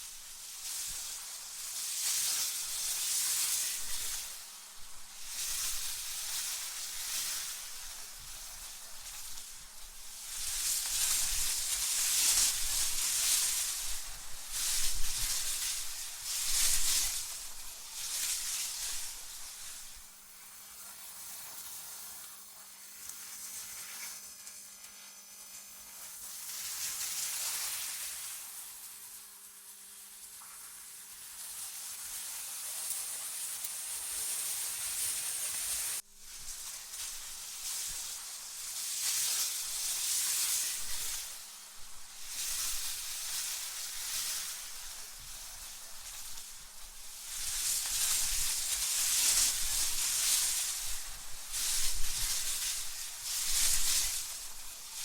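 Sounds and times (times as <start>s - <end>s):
gusty wind hiss: 0.0s - 20.6s, 34.9s - 55.0s.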